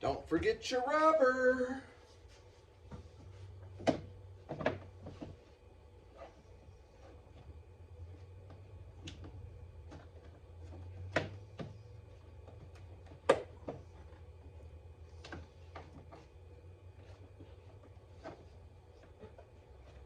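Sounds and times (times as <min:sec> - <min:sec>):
steady low hum: 0:00.0 - 0:20.0
clicks and knocks of car parts: 0:12.5 - 0:13.9.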